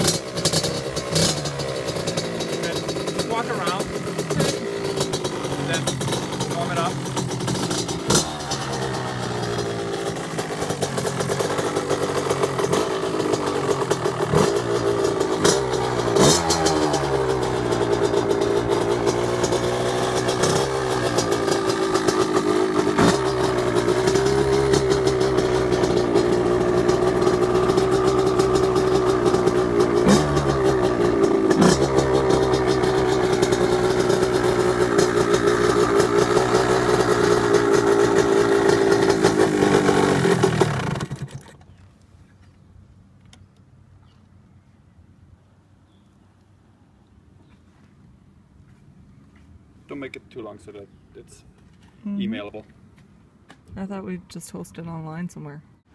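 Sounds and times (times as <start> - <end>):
two-stroke engine idling: 0.0 - 41.8.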